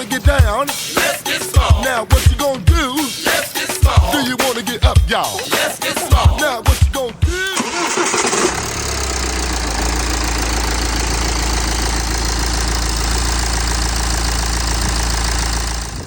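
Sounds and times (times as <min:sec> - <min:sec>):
diesel engine idling with clatter: 0:07.2 - 0:16.0.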